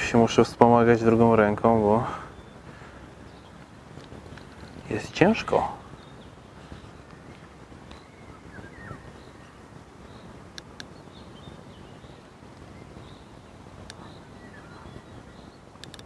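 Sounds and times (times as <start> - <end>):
faint bird calls: 1.9 - 16.0
sharp clicks: 10.5 - 10.9, 13.8 - 14.0, 15.7 - 16.0.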